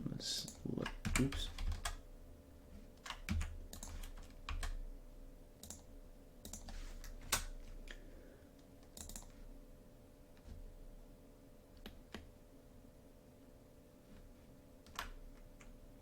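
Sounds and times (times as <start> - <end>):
faint steady hum: 0.0 - 16.0
keyboard keystrokes: 0.5 - 2.0, 3.0 - 4.8, 5.6 - 7.6, 8.8 - 9.4.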